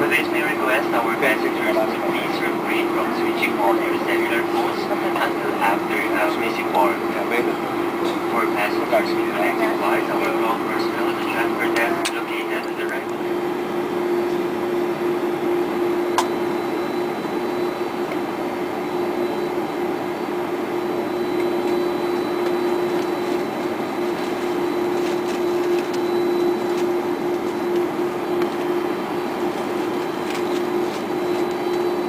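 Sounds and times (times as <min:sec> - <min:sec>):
aircraft cabin engine rush: 0:00.0 - 0:32.0
steady hum: 0:00.0 - 0:32.0.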